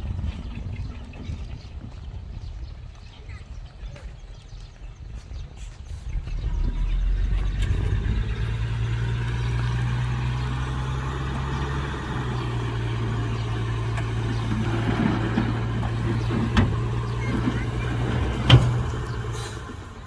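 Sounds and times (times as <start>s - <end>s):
heavy diesel engine running: 6.2s - 20.0s.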